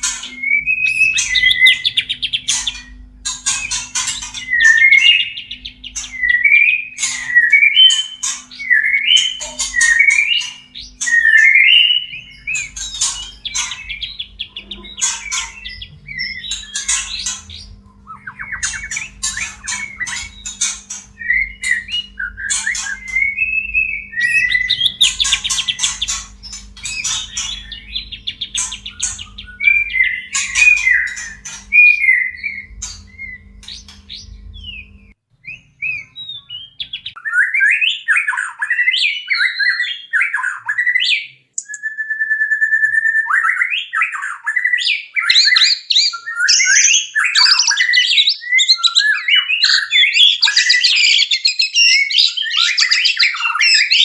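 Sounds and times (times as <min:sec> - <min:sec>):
harsh bird chattering: 0:00.0 - 0:34.9, 0:35.5 - 0:37.2
low steady hum: 0:00.0 - 0:37.2
bird whistled song: 0:00.0 - 0:54.0.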